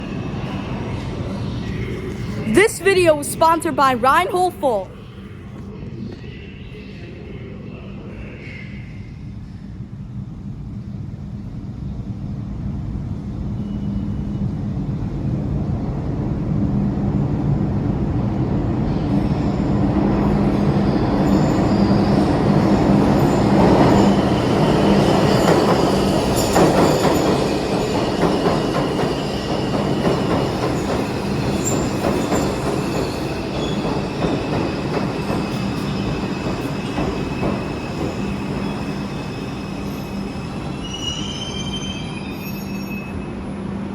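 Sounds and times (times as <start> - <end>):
subway train arriving: 0.0 - 43.9
rail clatter: 19.8 - 39.2
high-pitched wheel squeal: 35.6 - 43.3.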